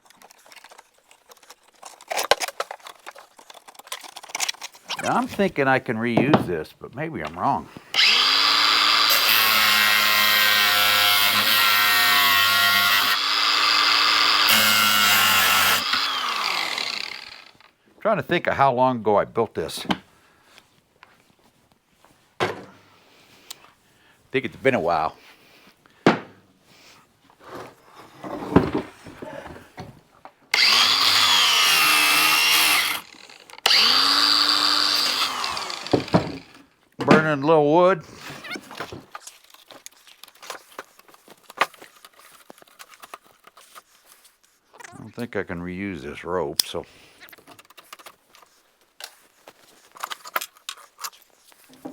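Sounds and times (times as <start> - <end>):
electric power drill whining: 7.9 - 17.7, 30.5 - 36.6
handling knocks: 22.4 - 22.8.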